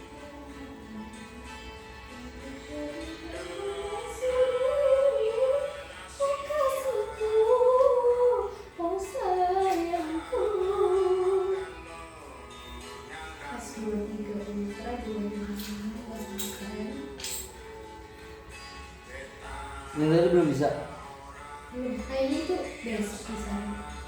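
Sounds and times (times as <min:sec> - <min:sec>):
woman singing: 0:00.0 - 0:17.8, 0:21.0 - 0:24.0.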